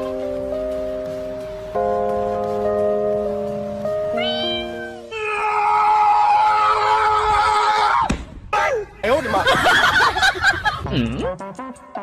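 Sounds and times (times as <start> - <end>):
background music of held notes: 0.0 - 5.2, 10.8 - 12.0.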